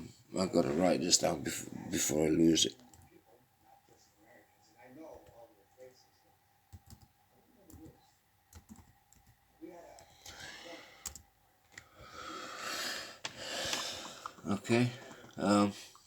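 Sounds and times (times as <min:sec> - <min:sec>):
soft hissing: 0:12.0 - 0:16.0.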